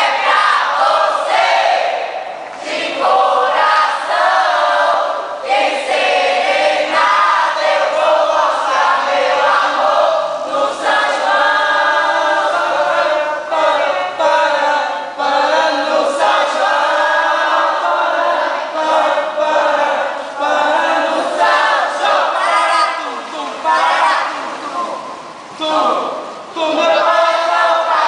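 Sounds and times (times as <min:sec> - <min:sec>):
group of voices singing: 0:00.0 - 0:28.0.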